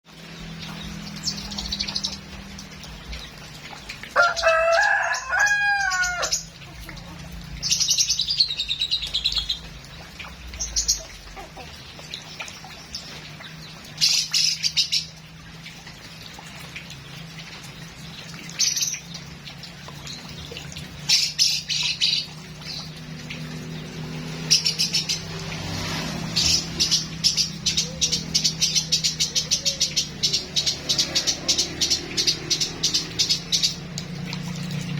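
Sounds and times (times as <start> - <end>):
rooster crowing: 4.2 - 6.4.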